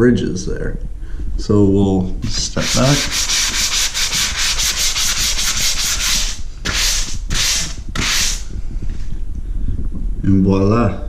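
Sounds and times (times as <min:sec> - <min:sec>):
hand sanding drywall: 0:02.2 - 0:08.5.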